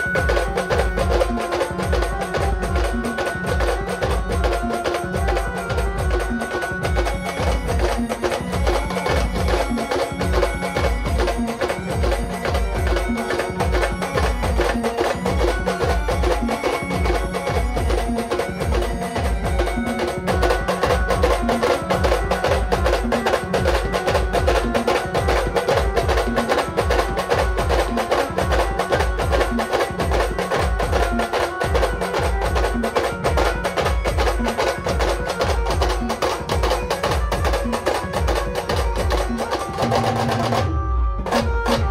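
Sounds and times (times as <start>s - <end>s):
fast drum beat: 0.0s - 40.7s, 41.3s - 41.9s
held melody line: 0.0s - 41.9s.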